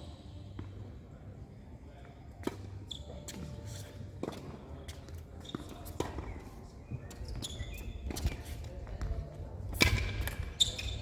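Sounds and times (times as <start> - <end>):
tennis ball hit by racket: 9.7 - 10.5.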